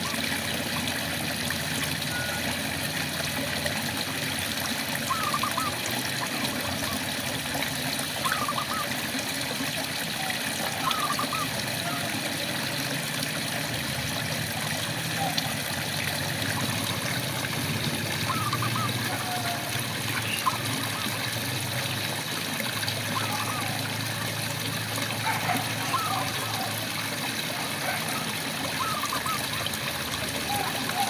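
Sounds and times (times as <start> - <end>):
frog calling: 5.0 - 7.0, 8.2 - 8.9, 10.2 - 12.1, 16.5 - 21.4, 23.1 - 23.9, 25.2 - 26.9, 27.6 - 29.7, 30.4 - 31.0.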